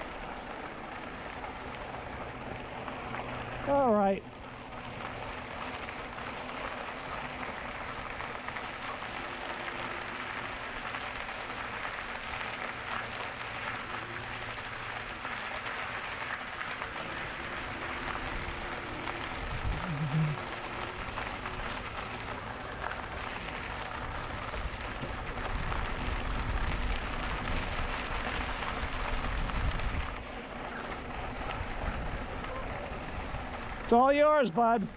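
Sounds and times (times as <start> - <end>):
bicycle tyres rolling: 0.0 - 34.9
wind on microphone: 19.4 - 20.4, 28.9 - 30.2.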